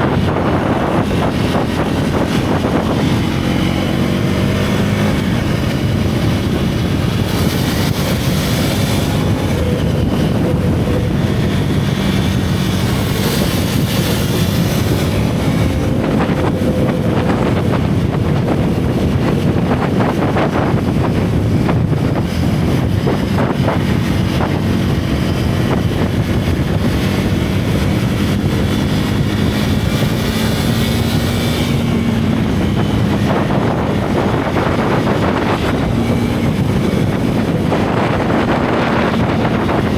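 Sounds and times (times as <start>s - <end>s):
motorcycle engine running: 0.0s - 39.9s
wind over microphone: 0.0s - 39.9s.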